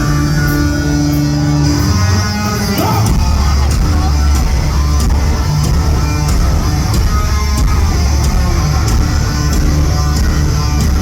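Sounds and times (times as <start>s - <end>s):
hard rock band playing: 0.0s - 11.0s.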